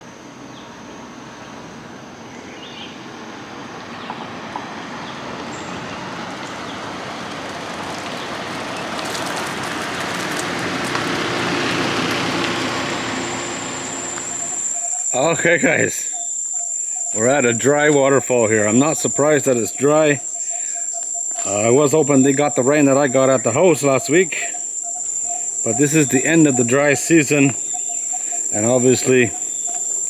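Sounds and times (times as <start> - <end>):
high-pitched insect drone: 11.2 - 30.0.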